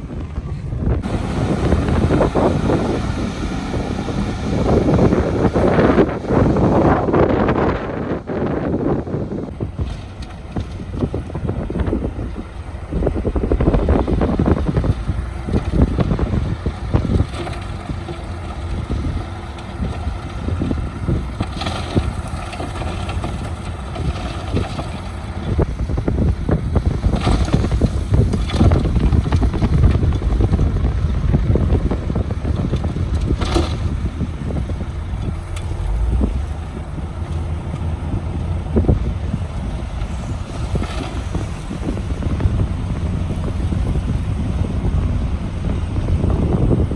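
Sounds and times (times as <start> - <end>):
diesel machinery rumbling: 0.0 - 46.9
wind buffeting microphone: 0.0 - 46.9.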